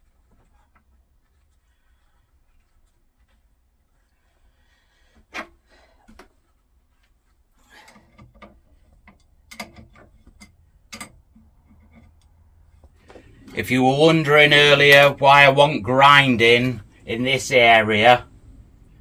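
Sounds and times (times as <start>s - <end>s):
metal parts and tools clicking: 7.8s - 12.4s.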